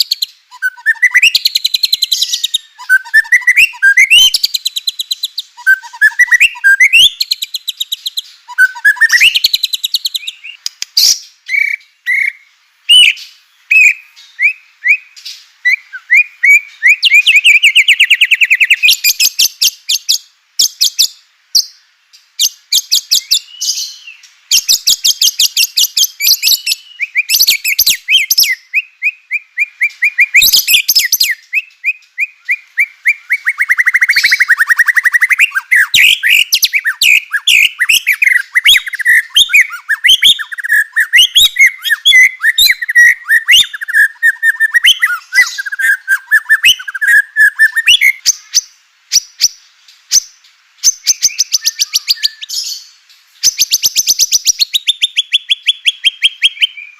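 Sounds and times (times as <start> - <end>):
bird warbling and chattering: 0.0 - 15.0.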